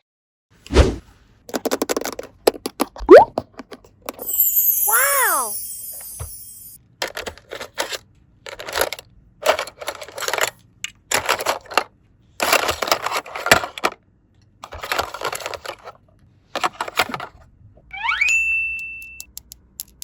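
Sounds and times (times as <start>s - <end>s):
plastic toy pieces clattering: 1.5s - 3.0s, 3.6s - 14.0s, 14.6s - 16.0s.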